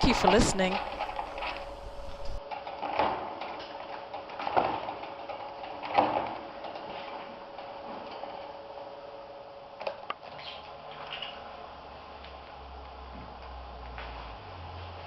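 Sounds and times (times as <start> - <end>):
steady hum: 0.0 - 2.4.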